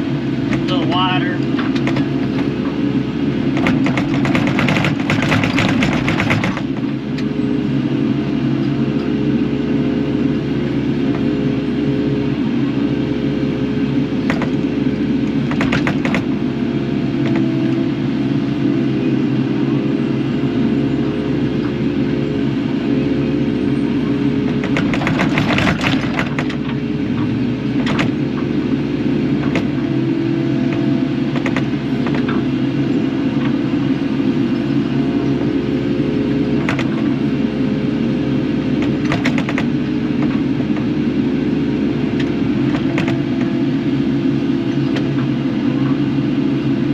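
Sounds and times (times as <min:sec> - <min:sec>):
excavator diesel engine running: 0:00.0 - 0:46.9
sharp knocks: 0:03.6 - 0:06.8, 0:15.5 - 0:16.3.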